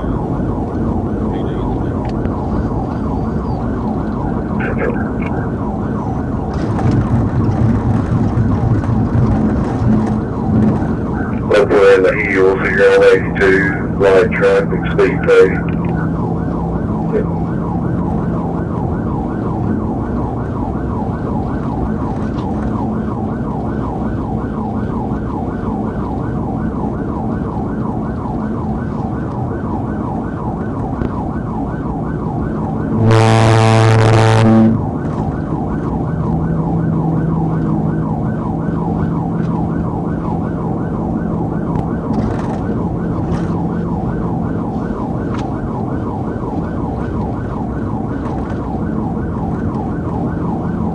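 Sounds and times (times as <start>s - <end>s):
police siren: 0.0s - 50.9s
road noise: 0.0s - 50.9s
horn blast: 32.9s - 34.8s.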